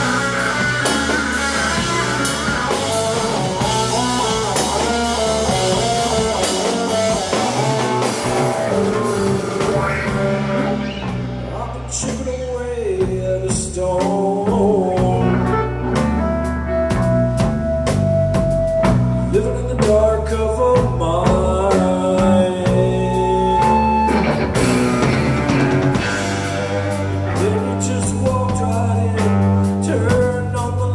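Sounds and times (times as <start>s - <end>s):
long held guitar notes: 0.0s - 12.8s, 22.2s - 29.8s
rock band playing live: 0.0s - 30.9s.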